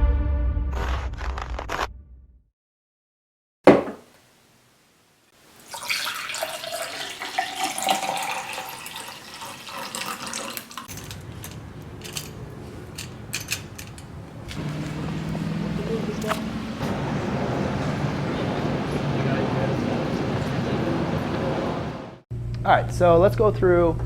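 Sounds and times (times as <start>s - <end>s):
running water rushing: 5.4s - 10.9s, 14.6s - 22.2s.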